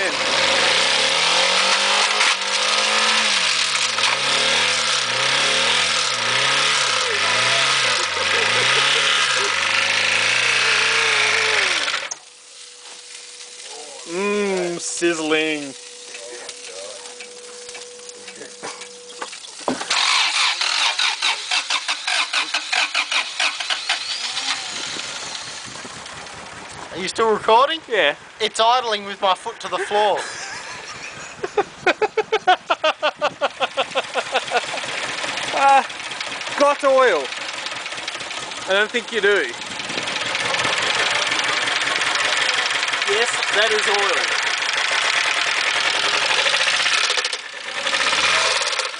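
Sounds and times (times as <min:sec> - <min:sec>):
car engine revving: 0:00.0 - 0:12.3, 0:19.7 - 0:28.4, 0:33.3 - 0:48.9
loud hiss: 0:01.9 - 0:26.0.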